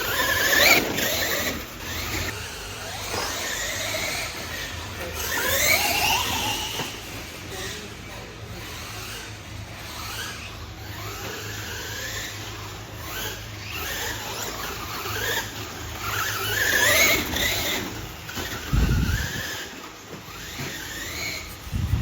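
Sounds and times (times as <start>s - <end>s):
electric motors whining: 0.0s - 22.0s.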